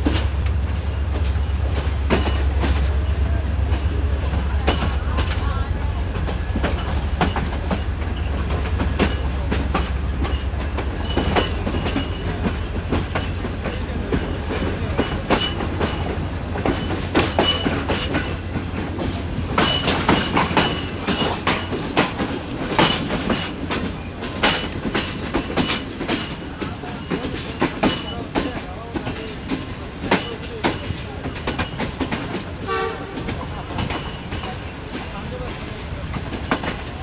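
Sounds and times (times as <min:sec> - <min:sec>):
train wheels clattering: 0:00.0 - 0:37.0
high wheel squeals: 0:11.0 - 0:14.0.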